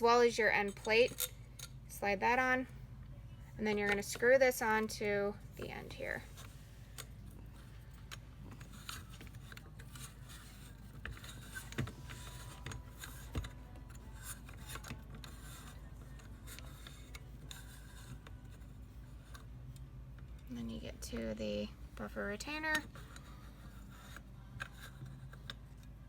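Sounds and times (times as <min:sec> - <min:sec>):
faint metallic scraping and clicks: 0:05.6 - 0:21.4, 0:22.0 - 0:26.0.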